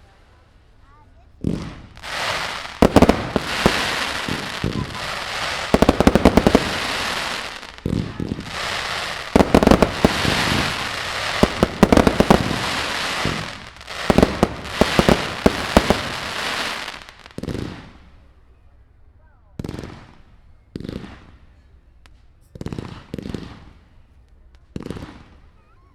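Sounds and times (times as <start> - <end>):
firework crackling: 1.4 - 18.0
firework shells bursting: 1.6 - 17.4.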